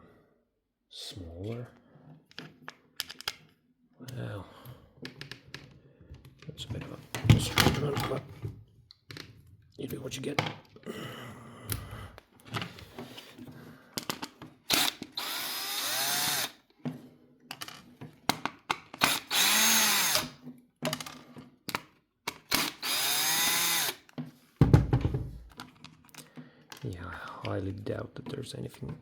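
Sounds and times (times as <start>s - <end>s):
power drill motor whine: 14.7s - 16.6s, 19.0s - 20.4s, 22.5s - 24.0s.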